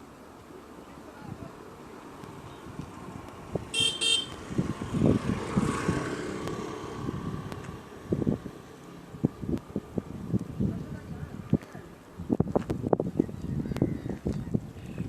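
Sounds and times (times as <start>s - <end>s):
vehicle going past: 1.4s - 10.3s
vehicle horn toots: 3.7s - 4.4s.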